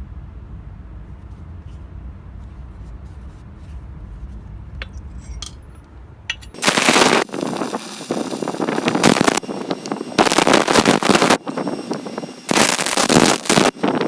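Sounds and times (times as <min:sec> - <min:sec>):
low rumble: 0:00.0 - 0:14.0
belt grinder grinding metal: 0:06.5 - 0:14.0.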